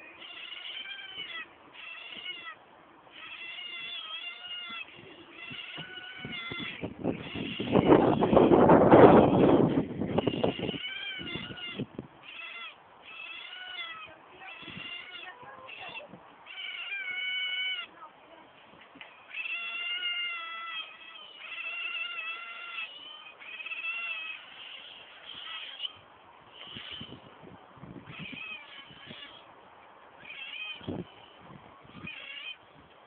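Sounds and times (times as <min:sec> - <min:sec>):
otters squealing: 0:00.0 - 0:17.9, 0:19.2 - 0:27.3, 0:28.0 - 0:29.5, 0:30.2 - 0:31.1.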